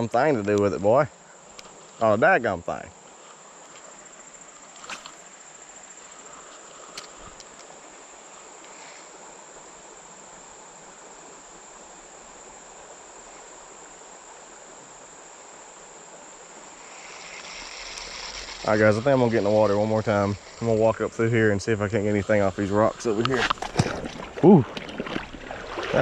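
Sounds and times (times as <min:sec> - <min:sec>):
insects trilling: 0:00.0 - 0:26.0
creek rushing: 0:05.2 - 0:26.0.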